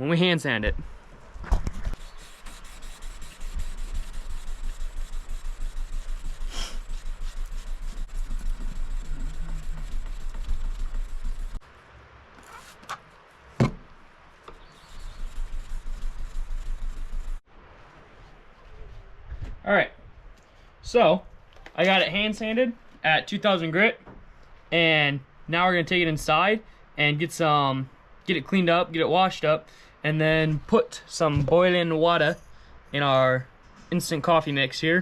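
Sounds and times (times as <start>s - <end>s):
sandpaper rubbing on blade: 2.0s - 11.6s, 12.4s - 12.9s, 14.6s - 17.4s.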